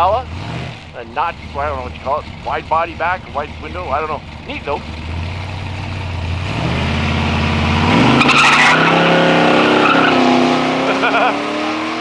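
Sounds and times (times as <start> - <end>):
drag car engine revving: 0.0 - 12.0
tires screeching: 0.0 - 12.0.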